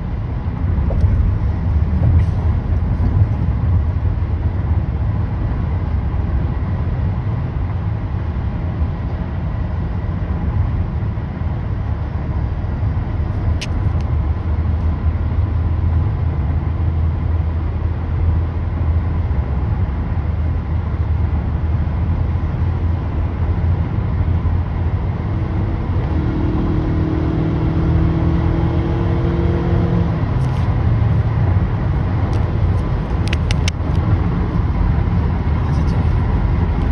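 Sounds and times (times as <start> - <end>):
sharp clicks: 33.1 - 34.0.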